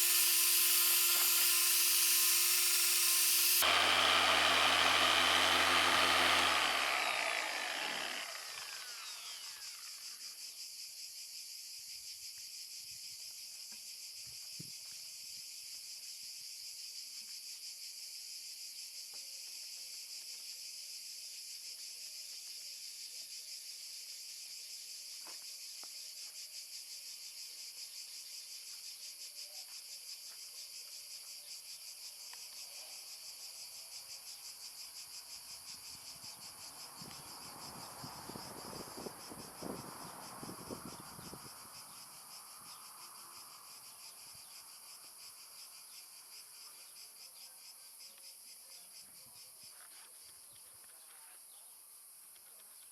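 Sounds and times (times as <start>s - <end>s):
insects chirring: 0.0s - 3.6s, 4.7s - 10.5s, 33.2s - 48.2s
polisher spinning down: 0.0s - 10.0s.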